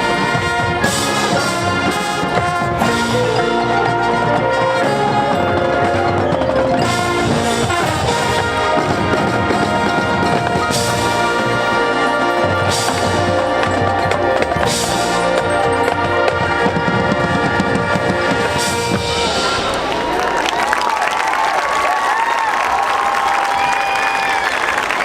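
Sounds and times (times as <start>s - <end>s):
brass chords: 0.0s - 20.8s
marching percussion: 0.0s - 21.4s.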